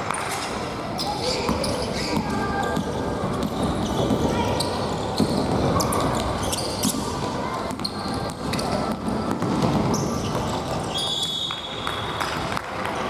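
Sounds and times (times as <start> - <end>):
sneakers squeaking on floor: 0.1 - 12.5
ball kicks: 7.7 - 10.8.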